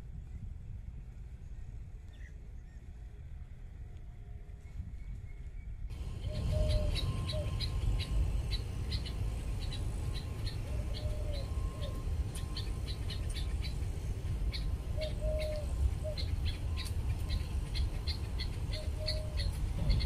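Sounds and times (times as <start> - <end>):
steady low rumble: 0.0 - 20.0
small birds chirping: 5.0 - 20.0
drawn-out bird call: 5.9 - 20.0.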